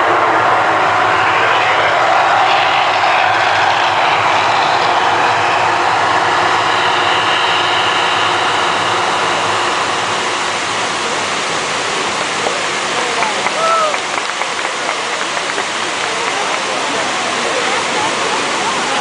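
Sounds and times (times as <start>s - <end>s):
roaring rumble: 0.0s - 13.3s.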